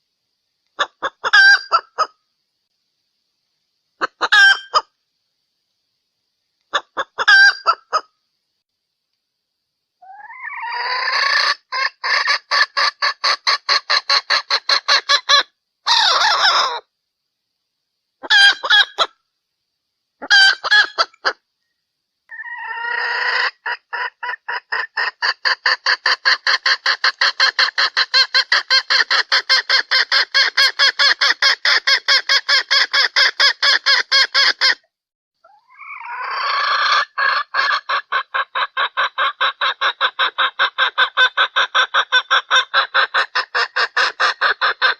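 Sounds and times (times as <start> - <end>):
junglefowl hen clucking: 0.8 - 2.2, 4.0 - 5.0, 6.7 - 8.1, 10.0 - 16.9, 18.2 - 19.2, 20.2 - 21.4, 22.3 - 34.8, 35.4 - 44.9.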